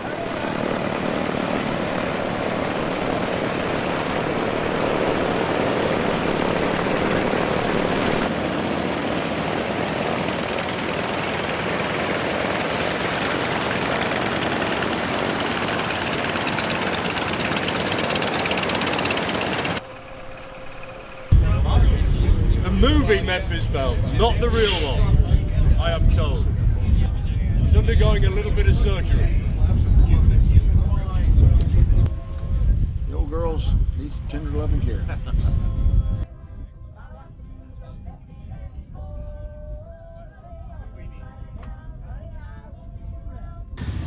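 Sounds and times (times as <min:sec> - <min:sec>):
propeller aircraft engines: 0:00.0 - 0:25.1, 0:33.2 - 0:36.2, 0:43.8 - 0:44.0.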